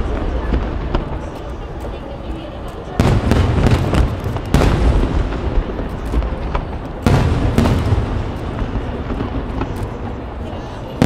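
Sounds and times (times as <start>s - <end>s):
firework pops and crackle: 0.0s - 11.0s
firework shells booming: 3.0s - 11.0s.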